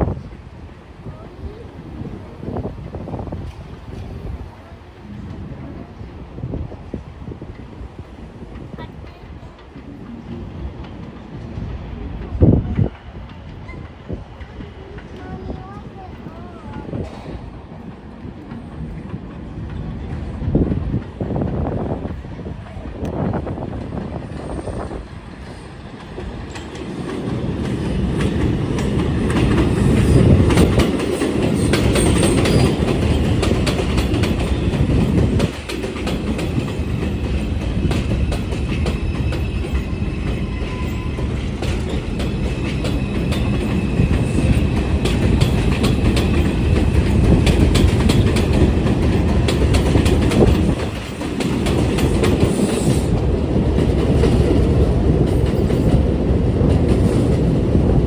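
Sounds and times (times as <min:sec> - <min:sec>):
train rumbling through station: 0:00.0 - 0:58.0
wheels clicking over rail joints: 0:25.4 - 0:57.8.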